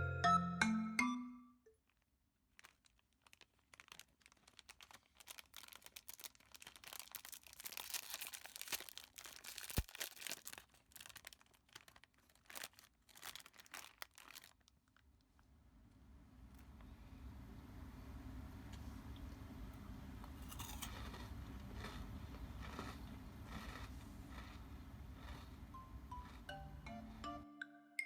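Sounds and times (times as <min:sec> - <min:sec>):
snack packaging crinkling and tearing: 0:01.9 - 0:15.4, 0:20.4 - 0:25.6.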